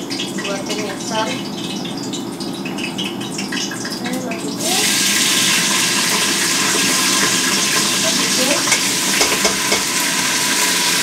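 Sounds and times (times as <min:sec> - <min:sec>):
food sizzling in hot oil: 0:00.0 - 0:11.0
utensil clicking against pot: 0:06.6 - 0:10.0.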